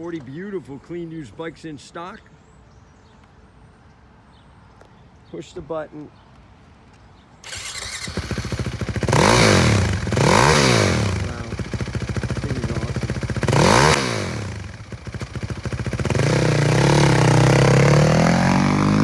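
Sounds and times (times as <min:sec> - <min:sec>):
engine throttle blips: 0:07.4 - 0:19.0
motorcycle engine running: 0:07.4 - 0:19.0.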